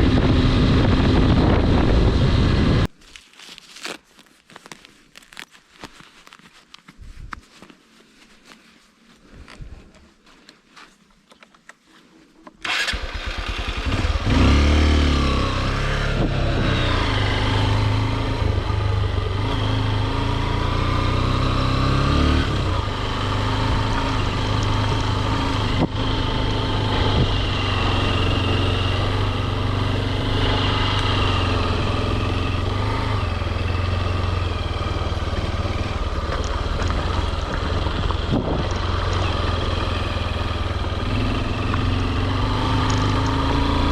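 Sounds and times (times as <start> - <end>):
motorcycle engine revving: 0.0 - 2.9, 12.6 - 43.9.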